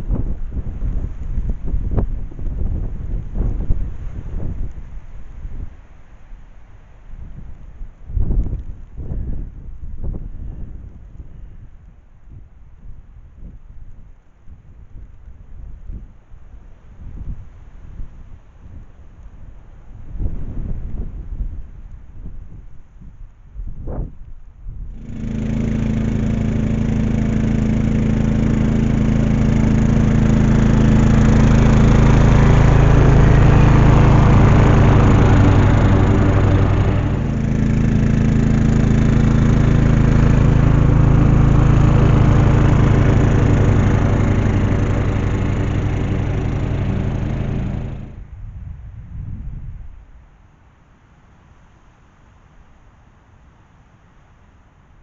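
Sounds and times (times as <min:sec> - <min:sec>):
ride-on mower engine running: 0:24.9 - 0:48.3.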